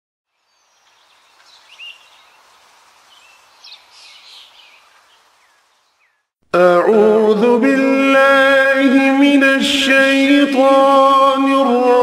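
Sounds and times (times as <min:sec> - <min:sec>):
steady outdoor hiss: 0:00.3 - 0:06.3
faint birds chirping: 0:00.3 - 0:06.4.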